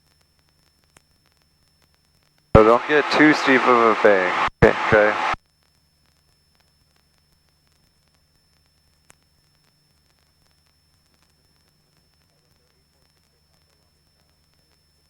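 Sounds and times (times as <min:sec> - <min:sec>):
faint electrical hum: 0:02.6 - 0:05.4.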